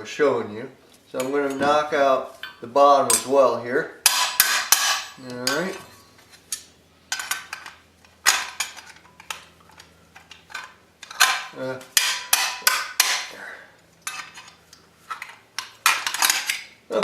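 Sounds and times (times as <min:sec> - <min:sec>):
metallic clanks: 0:10.2 - 0:13.4.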